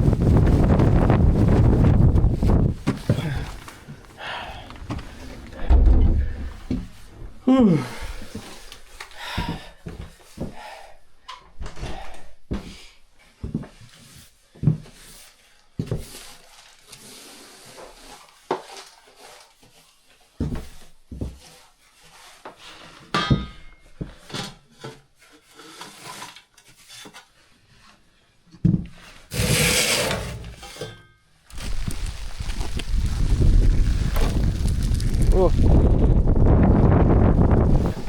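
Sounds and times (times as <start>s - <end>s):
wooden knocks and scrapes: 0.0s - 7.4s, 28.6s - 30.9s.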